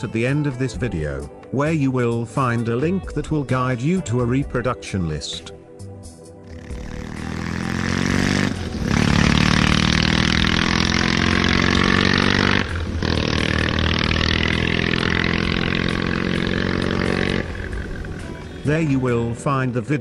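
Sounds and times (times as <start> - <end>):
motorcycle engine accelerating: 6.5 - 19.5.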